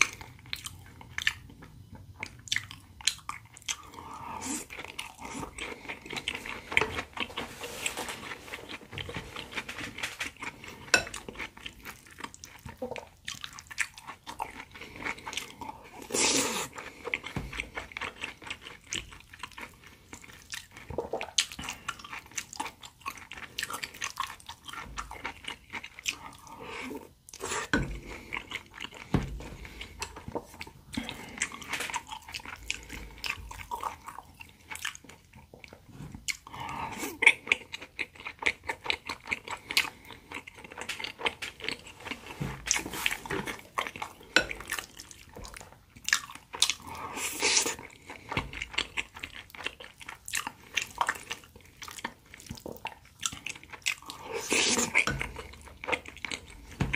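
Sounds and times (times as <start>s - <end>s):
chewing and biting food: 0.0s - 56.9s.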